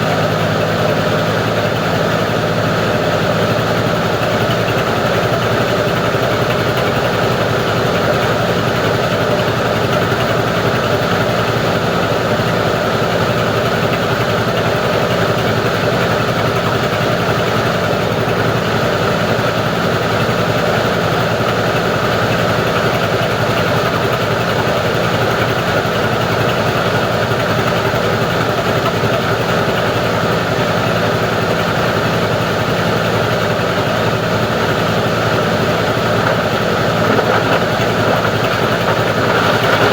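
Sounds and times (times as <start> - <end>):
grinding machine humming: 31.7 - 39.9.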